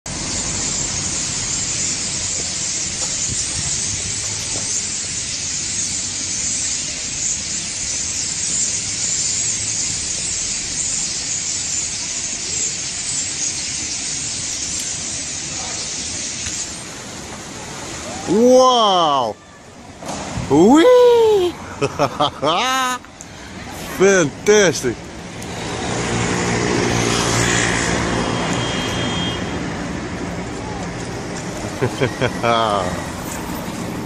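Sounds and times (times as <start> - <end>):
flock of birds chirping: 0.1 - 19.9.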